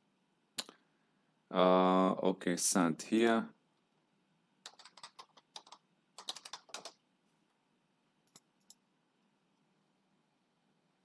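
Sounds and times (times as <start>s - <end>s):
faint computer keyboard typing: 4.6s - 7.0s, 8.2s - 8.8s.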